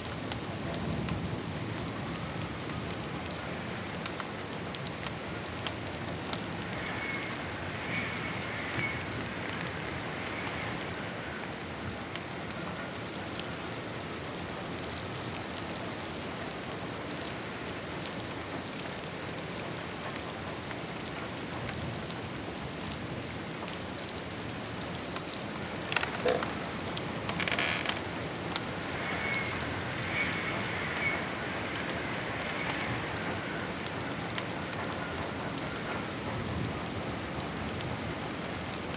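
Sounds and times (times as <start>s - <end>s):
steady rain: 0.0s - 38.9s
wood fire crackling: 24.8s - 29.1s
fire popping: 25.5s - 28.4s.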